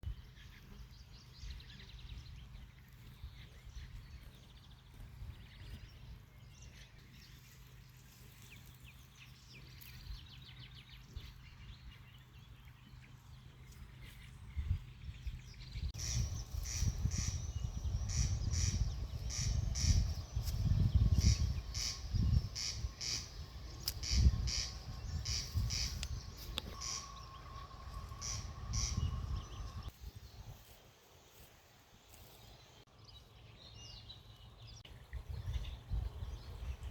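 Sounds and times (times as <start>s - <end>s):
birds singing and calling: 0.1s - 30.7s, 32.2s - 36.9s
bird high chirp: 14.0s - 29.9s.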